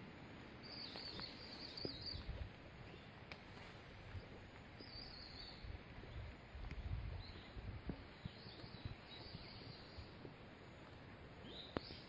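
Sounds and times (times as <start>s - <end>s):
forest background hiss: 0.0s - 12.0s
songbird twittering: 0.6s - 3.2s, 4.2s - 12.0s.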